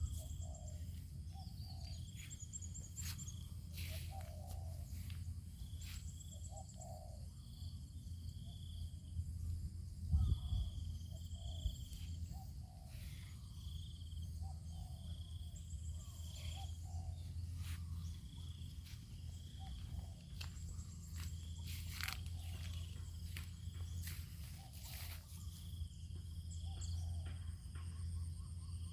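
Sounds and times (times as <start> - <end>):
high-pitched bird or insect calls: 0.0 - 9.1, 10.0 - 28.9
steady low rumble: 9.0 - 27.2.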